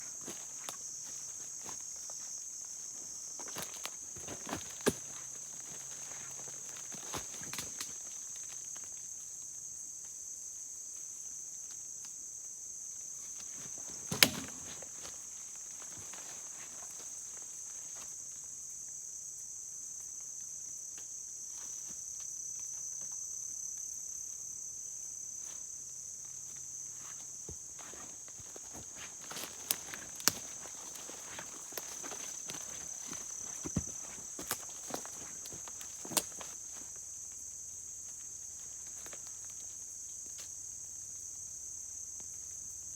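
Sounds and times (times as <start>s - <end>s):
high-pitched insect chorus: 0.0s - 42.9s
short clicks or footsteps: 28.6s - 36.4s.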